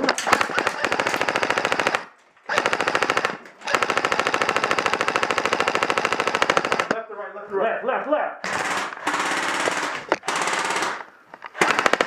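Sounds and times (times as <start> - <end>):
airsoft rifle full-auto bursts: 0.2 - 7.0, 8.4 - 12.0.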